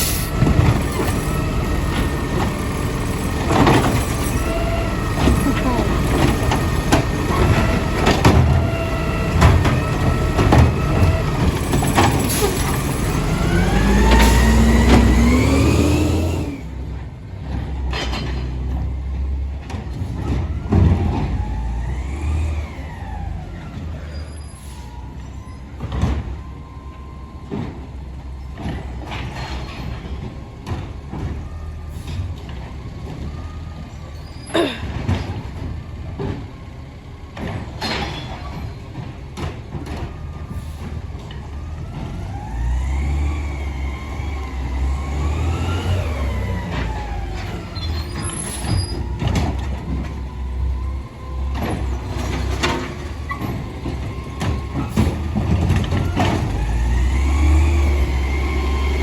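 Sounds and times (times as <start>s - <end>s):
diesel engine revving: 0.0s - 17.9s, 18.6s - 26.4s, 28.1s - 59.0s
clanks and knocks: 17.4s - 19.0s, 37.3s - 42.2s, 46.6s - 57.3s.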